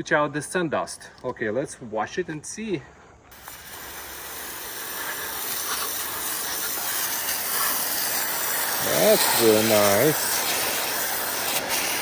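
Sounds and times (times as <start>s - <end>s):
water spraying onto wood: 3.3s - 12.0s.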